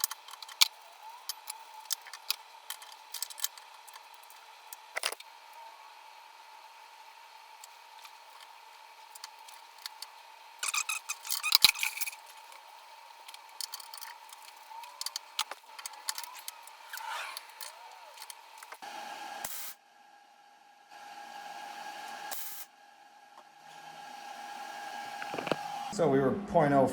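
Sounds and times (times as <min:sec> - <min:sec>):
metal tools clicking and scraping: 0:00.0 - 0:05.2, 0:09.1 - 0:18.8.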